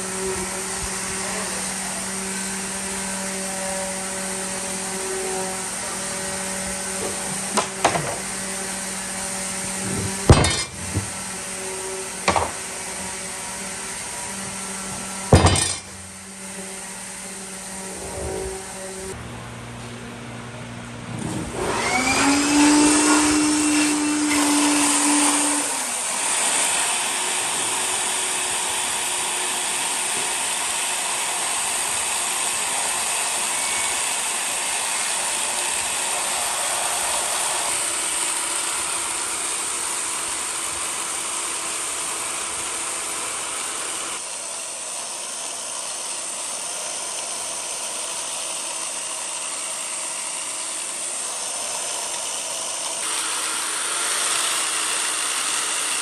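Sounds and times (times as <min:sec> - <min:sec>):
power tool motor whine: 0:00.0 - 0:19.2, 0:21.1 - 0:56.0
loud steady hiss: 0:24.9 - 0:56.0.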